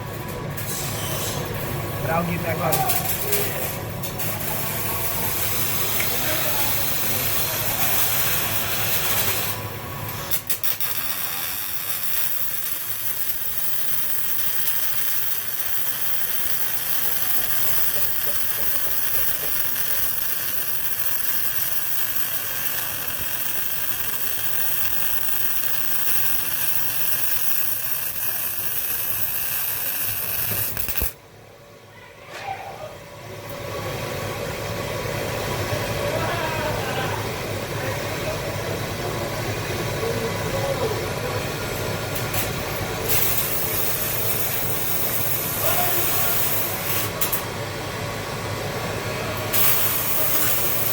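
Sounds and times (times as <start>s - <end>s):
welding arc hissing: 0.6s - 31.2s, 42.2s - 47.5s, 49.4s - 50.9s.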